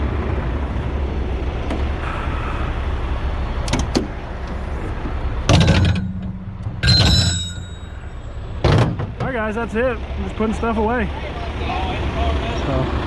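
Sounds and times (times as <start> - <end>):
truck engine idling: 0.0 - 13.0
loud metallic bangs: 3.5 - 9.4.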